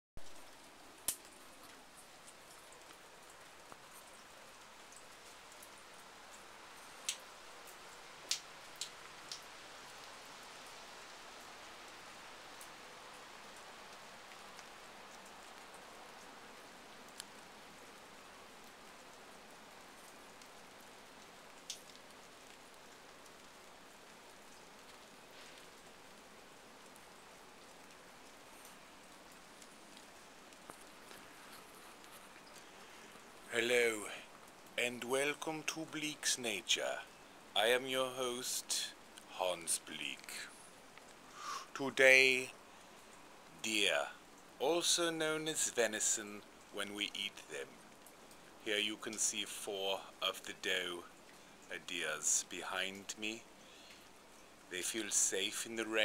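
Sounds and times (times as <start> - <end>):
light rain falling: 0.2 - 56.0.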